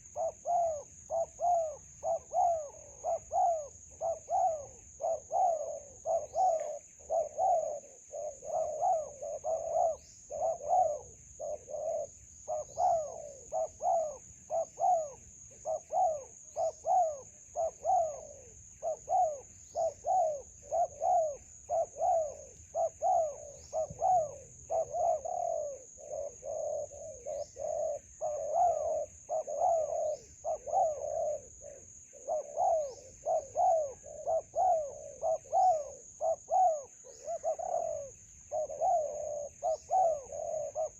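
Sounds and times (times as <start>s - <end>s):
doves cooing: 0.0s - 40.9s.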